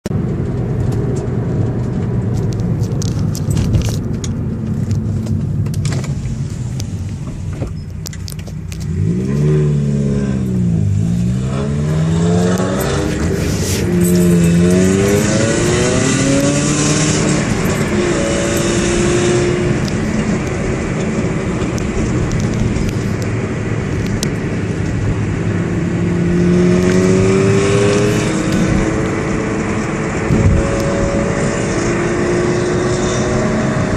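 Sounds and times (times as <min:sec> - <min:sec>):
engine clicks and rattles: 0:00.1 - 0:09.0, 0:12.4 - 0:18.9, 0:19.7 - 0:25.2
car engine idling and revving: 0:00.1 - 0:33.9.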